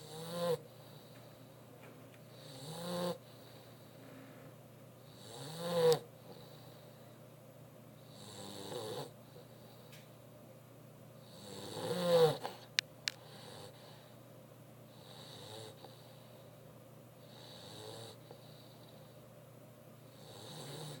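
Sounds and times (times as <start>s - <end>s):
dog snoring: 0.0s - 1.4s, 2.3s - 4.0s, 5.0s - 7.0s, 8.0s - 9.9s, 11.2s - 14.1s, 14.9s - 16.2s, 17.2s - 19.2s, 20.1s - 21.0s.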